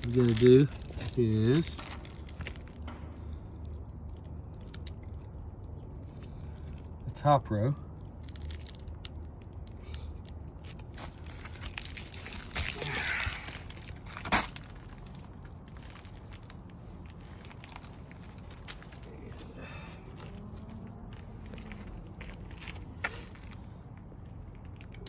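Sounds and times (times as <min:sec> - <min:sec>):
roof shingles crunching: 0:00.0 - 0:05.3, 0:08.1 - 0:25.0.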